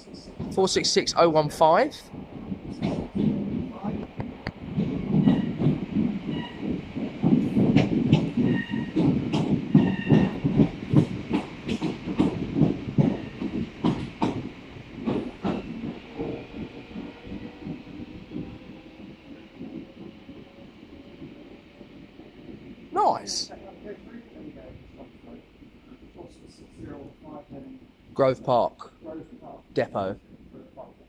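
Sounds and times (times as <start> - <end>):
train wheels clattering over rail joints: 2.6 - 22.8.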